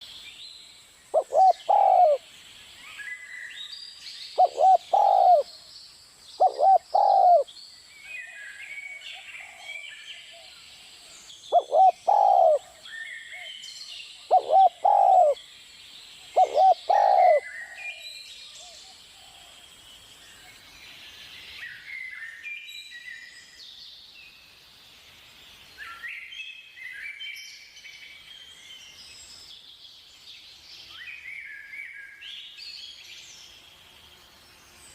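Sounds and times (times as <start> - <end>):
small birds chirping: 0.0 - 34.9
dove cooing: 1.1 - 2.2, 4.4 - 5.5, 6.4 - 7.5, 11.5 - 12.8, 14.3 - 15.4, 16.3 - 17.5.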